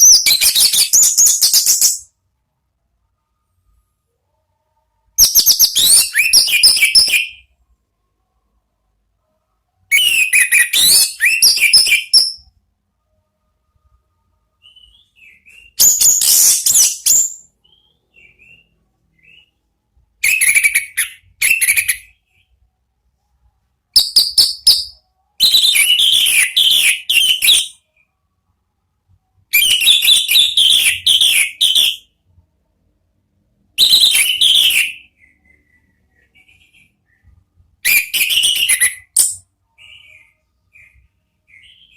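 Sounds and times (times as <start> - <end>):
thrush singing whistled phrases: 0.0 - 2.1, 5.2 - 7.5, 9.9 - 12.5, 14.6 - 19.6, 20.2 - 22.4, 24.0 - 27.9, 29.5 - 32.1, 33.8 - 41.9.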